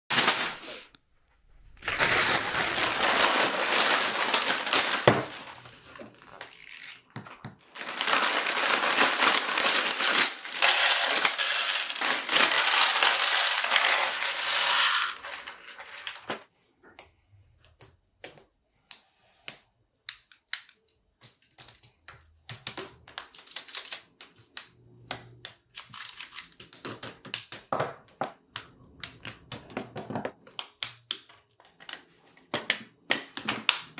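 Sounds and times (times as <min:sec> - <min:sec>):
plastic bricks rattling: 0:01.9 - 0:06.6, 0:07.7 - 0:16.4.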